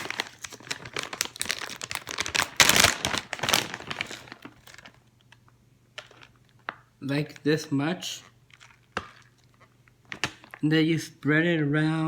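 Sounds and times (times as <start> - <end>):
plastic bag crinkling: 0.0 - 6.9, 8.1 - 10.6.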